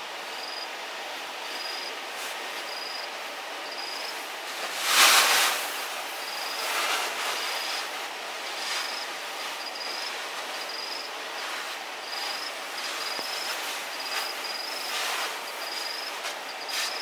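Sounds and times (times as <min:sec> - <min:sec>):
steady hiss: 0:00.0 - 0:17.0
rustles: 0:01.4 - 0:17.0
insect high-pitched trills: 0:08.6 - 0:17.0.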